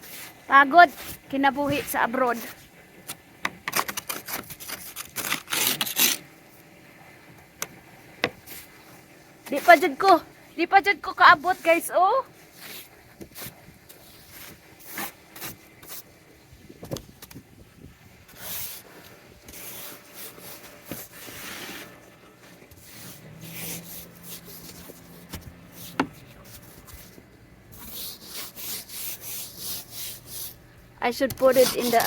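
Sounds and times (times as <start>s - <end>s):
snow scraped off a car: 0.0s - 2.7s, 11.4s - 16.2s, 18.2s - 30.6s.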